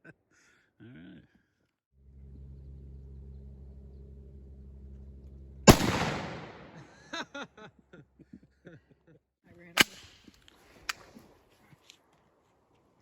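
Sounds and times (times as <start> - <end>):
low hum: 2.0 - 7.2
gunshot: 5.7 - 7.0.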